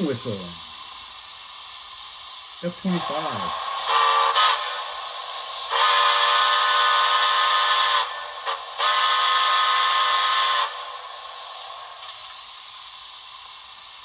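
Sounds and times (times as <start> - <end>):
model train steam whistle: 2.7 - 13.1.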